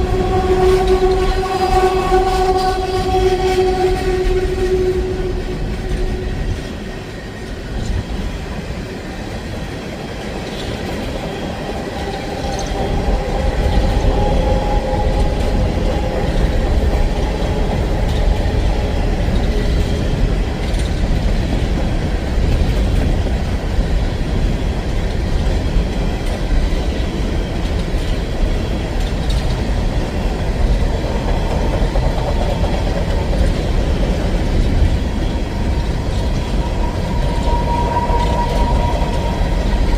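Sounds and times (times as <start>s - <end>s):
locomotive horn: 0.0s - 6.8s, 36.2s - 39.9s
train wheels rumbling and clattering: 0.0s - 39.9s.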